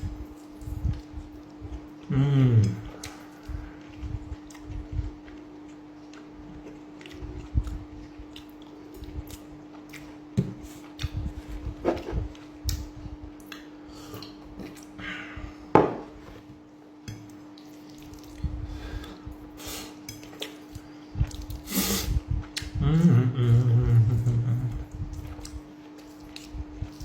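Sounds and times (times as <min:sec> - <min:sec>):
steady low hum: 0:00.0 - 0:27.0
chewing: 0:00.3 - 0:15.0, 0:17.2 - 0:18.6, 0:24.7 - 0:27.0.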